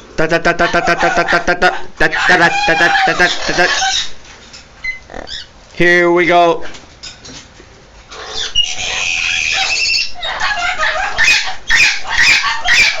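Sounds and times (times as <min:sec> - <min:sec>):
parrot squawking and chattering: 0:00.2 - 0:05.6, 0:08.1 - 0:13.0.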